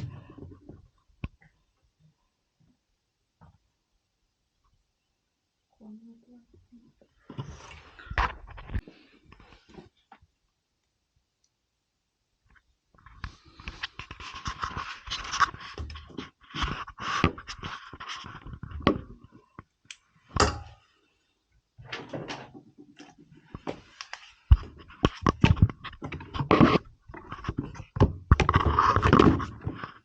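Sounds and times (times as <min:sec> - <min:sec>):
knocks scrapes and clicks: 0:24.5 - 0:30.0.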